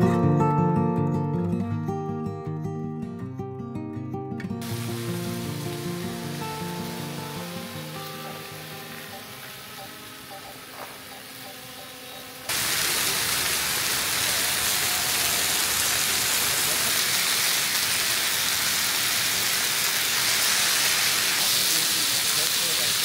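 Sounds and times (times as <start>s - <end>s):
meat sizzling on griddle: 4.6s - 23.0s.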